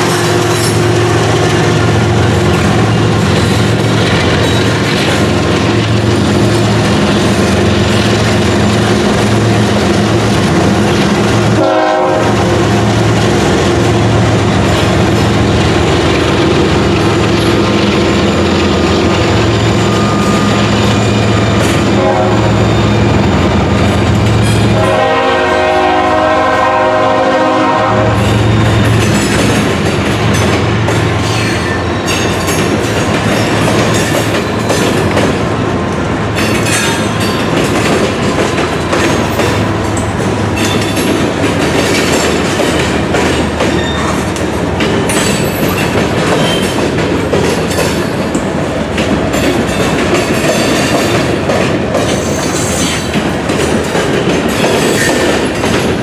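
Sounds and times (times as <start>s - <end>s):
train horn chord: 11.5s - 12.6s, 21.8s - 22.8s, 24.6s - 28.8s.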